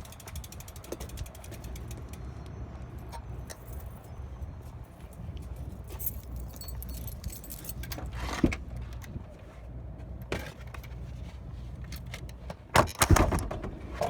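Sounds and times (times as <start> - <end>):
bike rattling clicks: 0.0 - 3.6.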